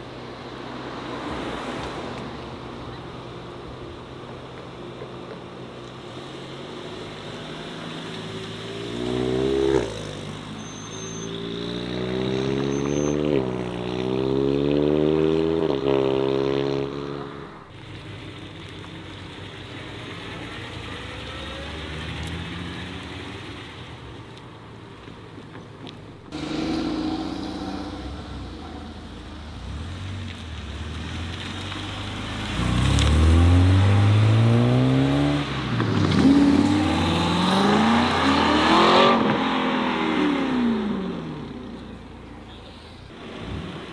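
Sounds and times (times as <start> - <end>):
car engines revving and accelerating: 0.0 - 43.9.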